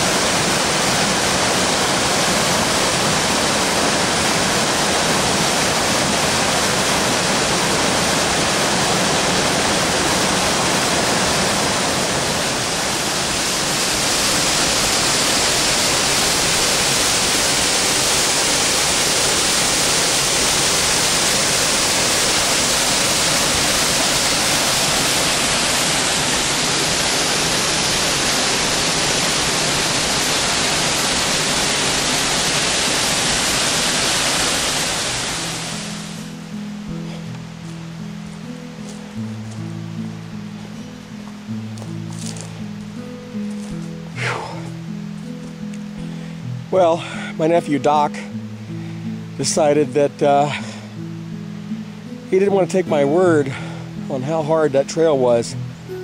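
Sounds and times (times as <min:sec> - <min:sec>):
waterfall pouring over rocks: 0:00.0 - 0:36.4, 0:41.7 - 0:45.3, 0:49.4 - 0:50.9.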